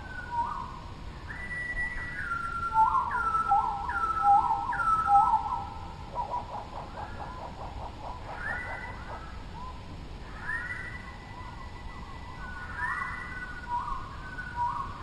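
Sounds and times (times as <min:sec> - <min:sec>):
songbirds singing: 0:00.0 - 0:15.0.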